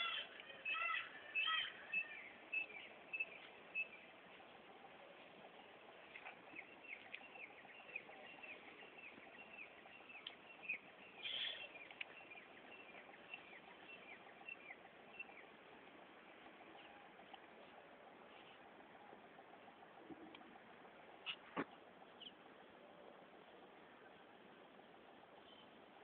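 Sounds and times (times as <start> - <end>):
small bird chirping: 6.0 - 15.5.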